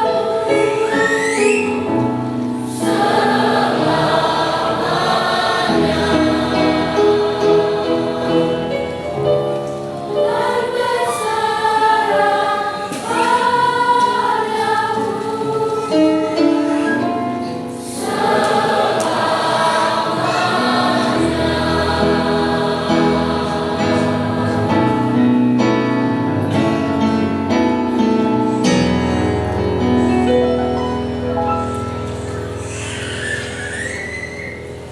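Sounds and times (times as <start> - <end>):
choir of teenage voices singing: 0.0 - 29.6.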